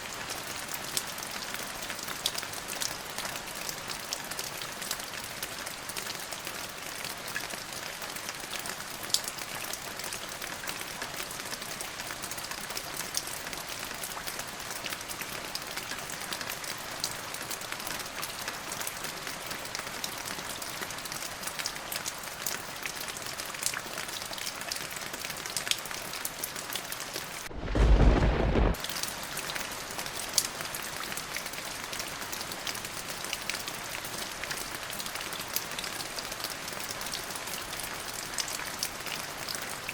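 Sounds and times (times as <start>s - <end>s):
steady rain: 0.0s - 39.9s
thunder clap: 27.4s - 28.8s.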